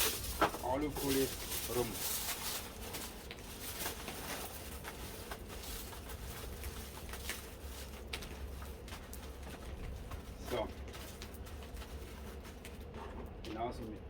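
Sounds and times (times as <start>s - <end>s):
aluminium foil crinkling: 0.0s - 13.9s
low steady rumble: 0.0s - 14.0s.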